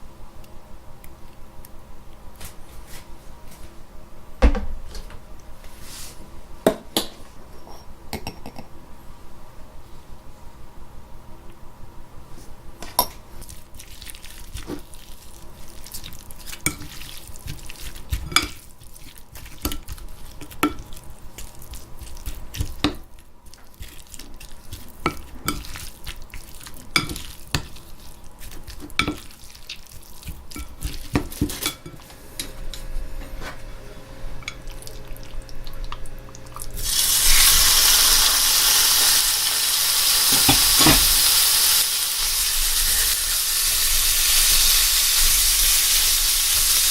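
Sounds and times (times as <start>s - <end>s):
utensil clinking and scraping bowl: 12.8s - 37.4s
batter sizzling in hot oil: 13.3s - 32.8s, 34.4s - 46.9s.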